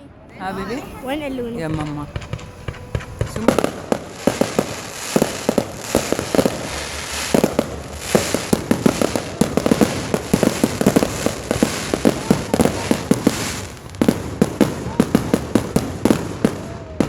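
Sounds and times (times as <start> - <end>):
crackling hiss: 0.3 - 17.0
fireworks pops and bangs: 1.6 - 17.0.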